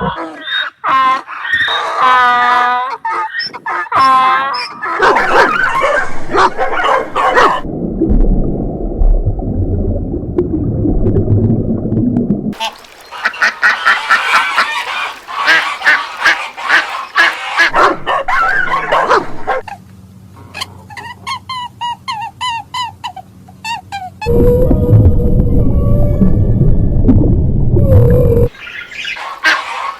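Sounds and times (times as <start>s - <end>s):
mix of animal calls: 0.0s - 7.6s, 12.6s - 24.6s, 28.4s - 29.9s.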